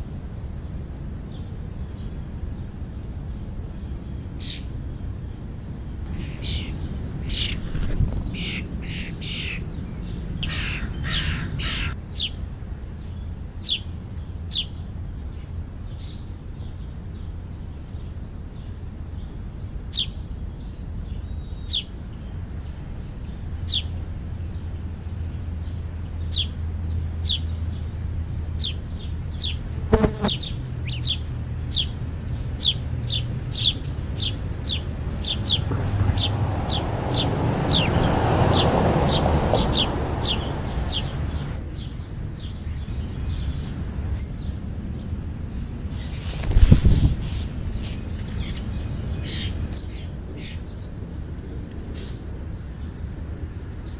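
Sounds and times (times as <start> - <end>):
high downward-sliding bird chirps: 5.9 - 12.4, 32.6 - 43.6
crow cawing: 10.4 - 12.0.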